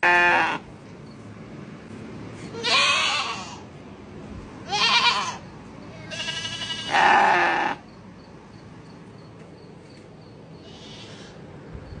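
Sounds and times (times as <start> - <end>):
goats and sheep bleating: 0.0 - 0.7, 2.5 - 3.6, 4.6 - 5.4, 6.0 - 7.8.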